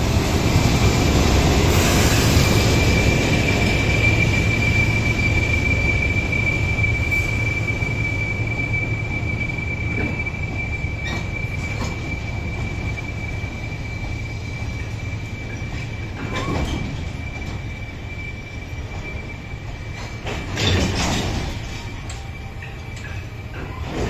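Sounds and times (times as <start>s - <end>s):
train wheels rumbling: 0.0s - 24.0s
high-pitched squeal from running gear: 0.9s - 24.0s
clanks over rail joints: 19.7s - 24.0s.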